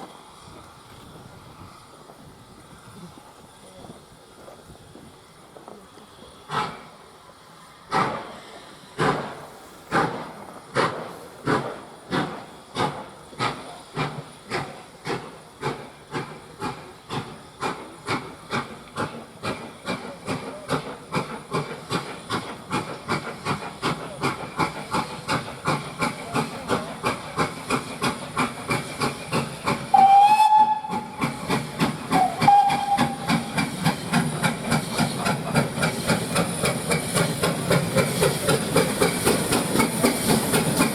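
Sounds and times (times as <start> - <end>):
steam locomotive exhaust beats: 0.0 - 40.9
steam whistle blasts: 29.9 - 31.4, 32.1 - 33.6.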